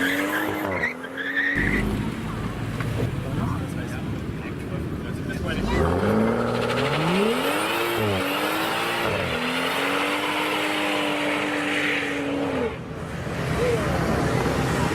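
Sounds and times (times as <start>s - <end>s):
car engine accelerating hard: 5.0s - 12.8s.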